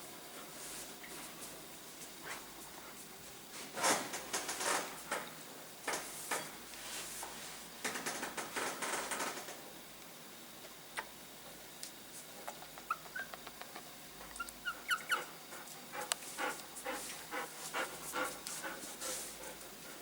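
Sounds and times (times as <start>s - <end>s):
pet animal squeaking: 12.9s - 13.4s, 14.4s - 15.3s.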